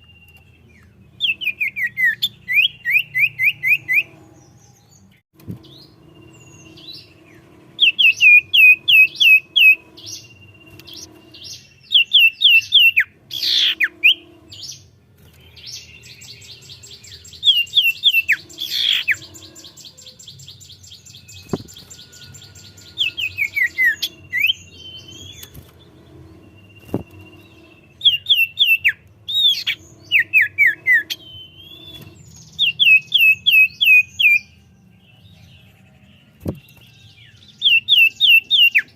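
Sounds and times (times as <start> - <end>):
low steady hum: 0.0 - 37.4
bird high rapid trill: 5.6 - 34.6.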